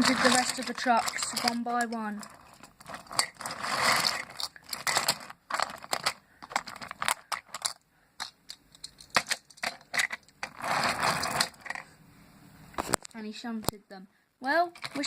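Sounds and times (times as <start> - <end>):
toy train trucks clacking on track: 0.0 - 11.8
handling noise: 0.0 - 11.9.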